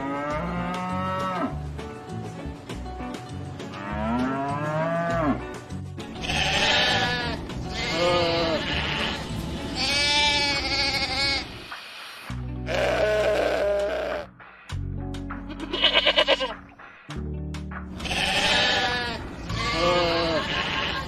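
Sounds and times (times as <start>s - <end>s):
background music: 0.0s - 21.0s
sheep bleating: 6.2s - 11.6s, 12.6s - 14.3s, 15.5s - 16.6s, 18.0s - 21.0s.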